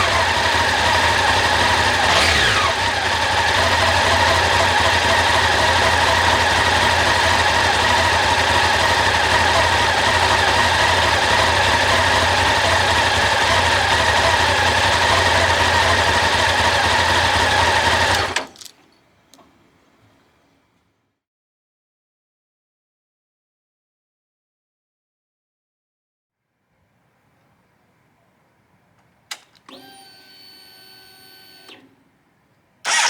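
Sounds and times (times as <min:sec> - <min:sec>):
motorcycle engine running: 0:00.0 - 0:18.4
faint engine ticks: 0:00.0 - 0:20.9, 0:31.6 - 0:33.0.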